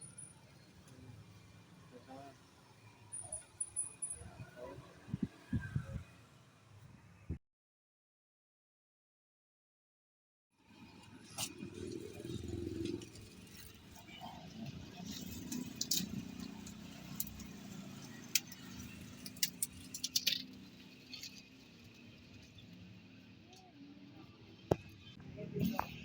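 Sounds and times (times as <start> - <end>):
small hard objects clicking and rattling: 15.1 - 22.0.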